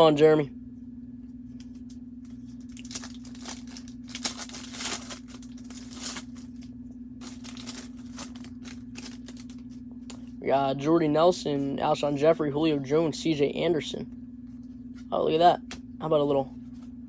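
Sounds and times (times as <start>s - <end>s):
low electrical hum: 0.0s - 17.0s
foil wrapper tearing and crinkling: 2.6s - 9.8s.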